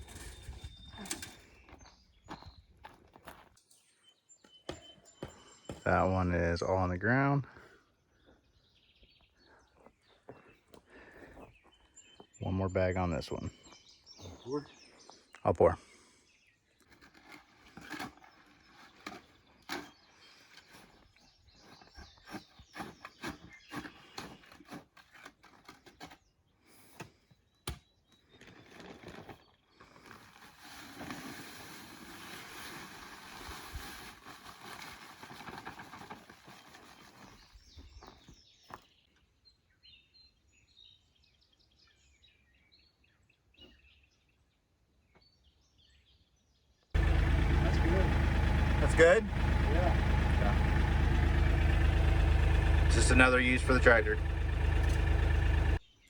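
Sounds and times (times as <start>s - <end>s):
faint birds chirping: 0.0s - 56.0s
handling knocks and rustles: 26.9s - 38.9s
concrete mix pouring: 28.4s - 37.4s.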